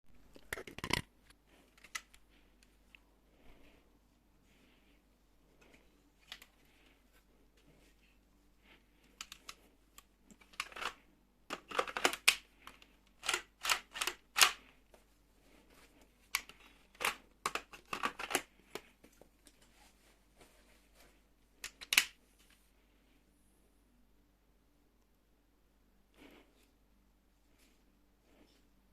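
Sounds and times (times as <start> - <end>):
plastic bricks clicking and snapping: 0.3 - 1.1, 10.3 - 14.6, 16.3 - 18.9, 21.6 - 22.2.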